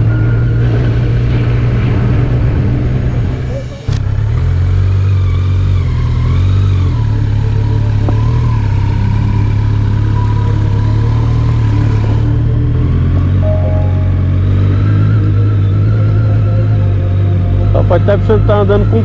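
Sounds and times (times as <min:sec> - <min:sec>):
vehicle engine running while driving: 0:00.0 - 0:19.0.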